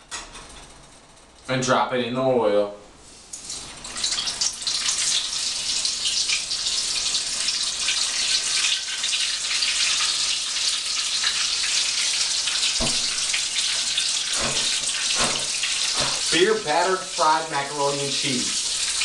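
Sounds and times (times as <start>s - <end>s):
deep-frying sizzle in oil: 3.0s - 19.0s
brief knock: 12.8s - 13.1s.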